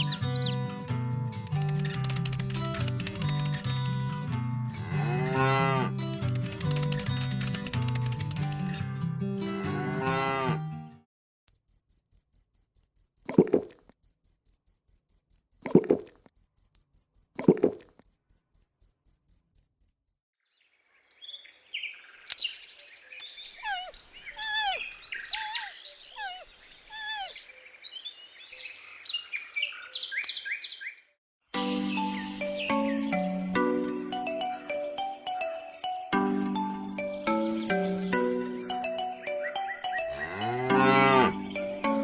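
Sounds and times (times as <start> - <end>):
insect chirping pulse: 11.5 - 20.2
songbirds chirping and twittering: 20.4 - 31.2, 37.0 - 42.0.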